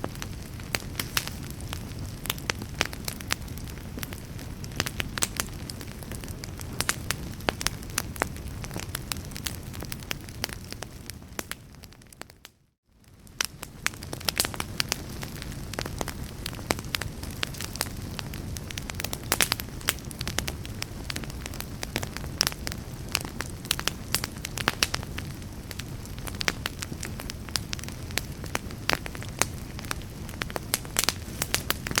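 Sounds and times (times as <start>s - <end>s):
fireplace fire crackling: 0.0s - 32.0s.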